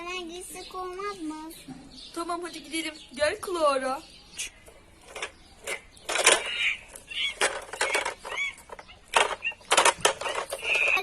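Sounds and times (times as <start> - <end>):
plastic toys clicking and knocking: 4.6 - 11.0
voice-like squeaks: 5.6 - 11.0.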